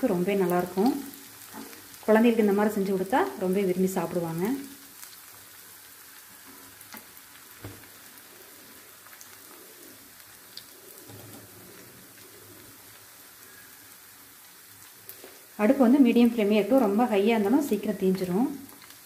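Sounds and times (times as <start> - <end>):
food sizzling in hot oil: 0.0 - 19.0
small oil crackles: 0.0 - 19.0
soft knock: 7.6 - 7.8.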